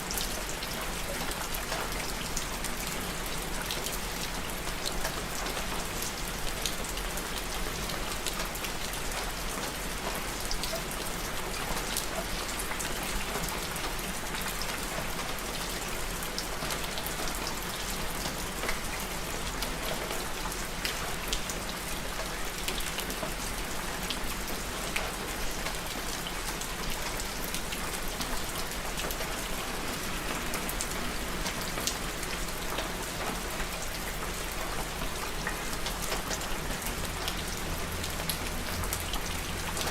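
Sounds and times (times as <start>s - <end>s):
raindrops pattering on a surface: 0.0s - 39.9s
steady rain hiss: 0.0s - 39.9s.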